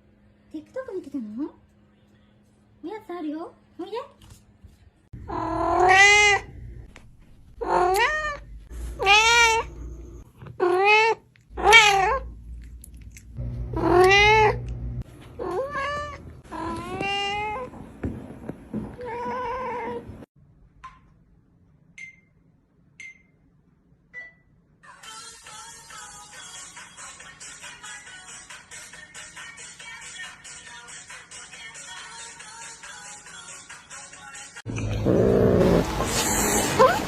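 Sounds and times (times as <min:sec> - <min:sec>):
cat meowing loudly: 0:05.3 - 0:06.5, 0:09.0 - 0:09.7, 0:10.6 - 0:12.2.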